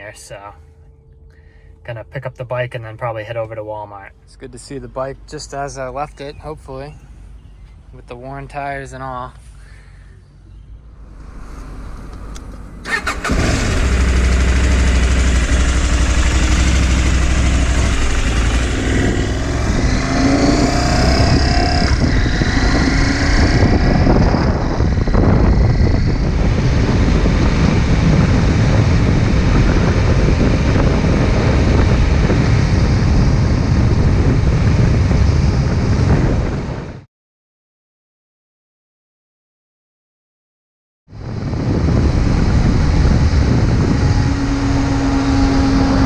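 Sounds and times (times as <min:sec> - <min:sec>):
motorcycle engine running: 0:13.2 - 0:34.3.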